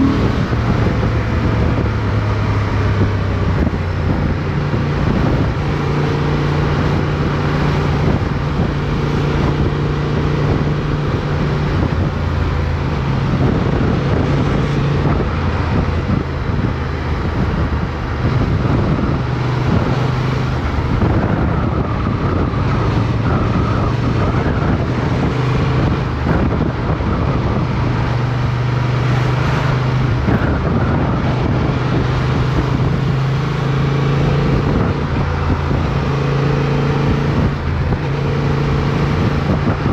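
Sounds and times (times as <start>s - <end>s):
motorcycle engine running: 0.0s - 28.1s
wind noise on microphone: 0.0s - 39.9s.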